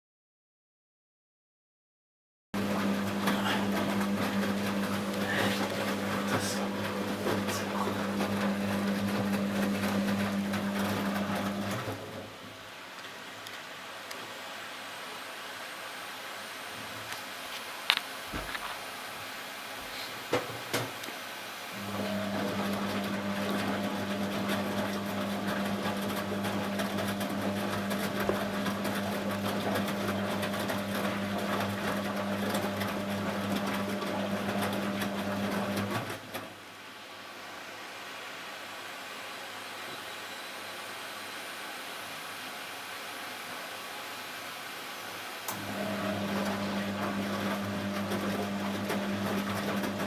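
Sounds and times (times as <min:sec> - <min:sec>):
rushing water: 0:02.6 - 0:19.8
washing machine hum: 0:02.6 - 0:37.3, 0:40.9 - 0:50.0.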